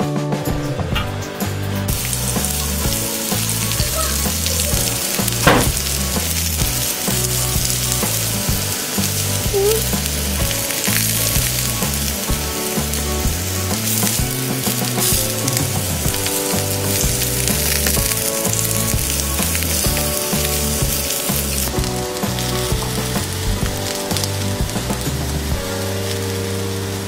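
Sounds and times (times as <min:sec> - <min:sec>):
zucchini sizzling in oil: 0:01.9 - 0:27.0.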